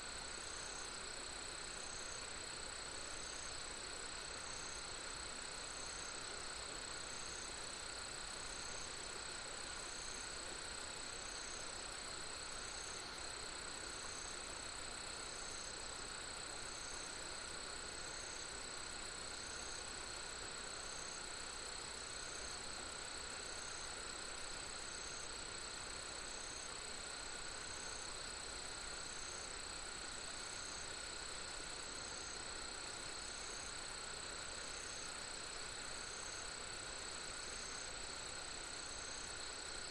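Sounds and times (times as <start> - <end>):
crickets and insects trilling: 0.1 - 39.9.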